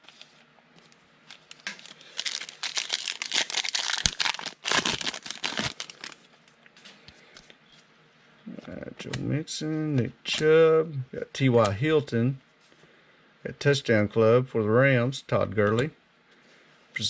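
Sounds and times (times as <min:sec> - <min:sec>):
foil wrapper crinkling: 0:01.3 - 0:06.2.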